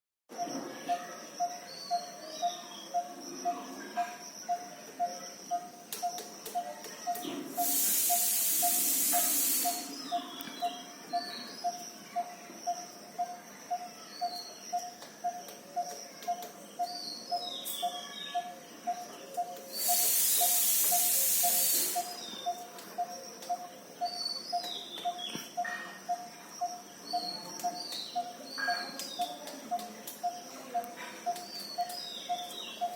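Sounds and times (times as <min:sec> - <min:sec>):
loud hiss: 0:07.6 - 0:10.0, 0:19.7 - 0:22.3.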